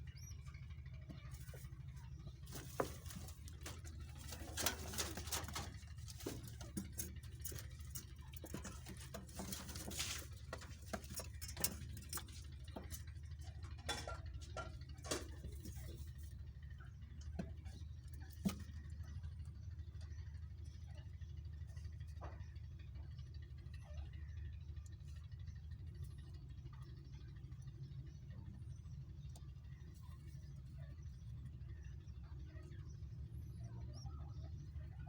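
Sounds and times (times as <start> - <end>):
steady low hum: 0.0 - 35.0
light taps and scratches: 1.0 - 19.1.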